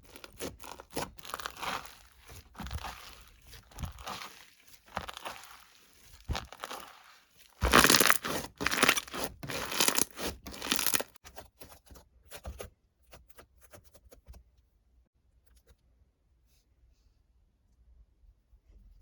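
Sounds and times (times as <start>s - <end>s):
rustling tearing noise: 0.0s - 11.2s.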